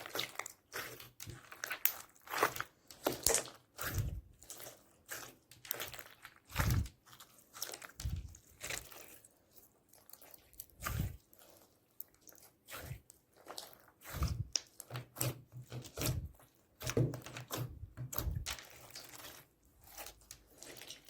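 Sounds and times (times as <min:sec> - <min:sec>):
slime squishing and crackling: 0:00.0 - 0:21.0.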